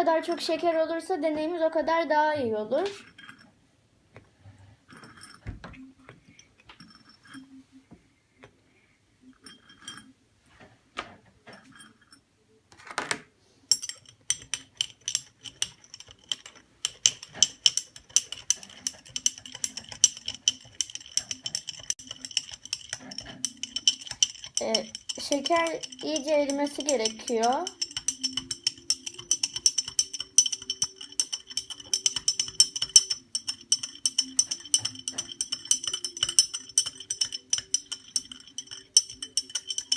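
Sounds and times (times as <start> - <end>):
spoon clinking and scraping: 3.0 - 3.6, 4.9 - 7.6, 9.2 - 10.2, 11.5 - 12.2, 13.7 - 39.9
spoon stirring in a teapot: 3.0 - 3.6, 4.9 - 5.5, 6.2 - 7.6, 9.3 - 10.2, 11.5 - 12.2, 13.7 - 39.9.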